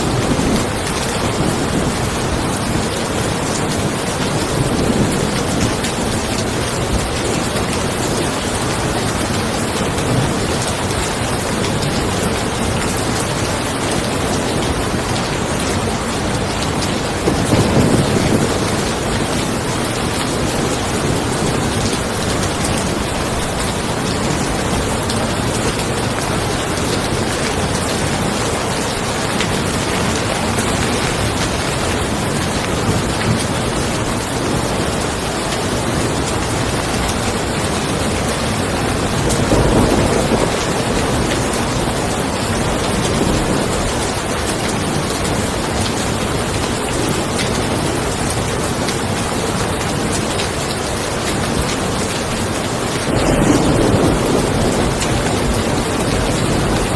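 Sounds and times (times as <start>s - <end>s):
rain falling on a car: 0.0s - 56.9s
low rumble of thunder: 13.8s - 35.2s, 38.1s - 44.4s, 51.4s - 56.9s.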